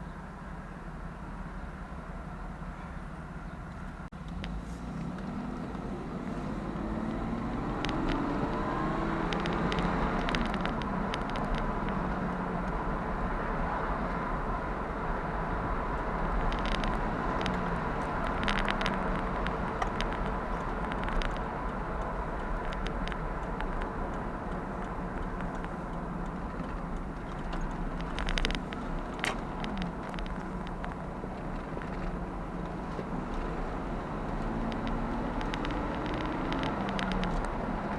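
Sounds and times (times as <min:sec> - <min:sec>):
engine revving: 0:04.2 - 0:12.6, 0:27.6 - 0:37.9.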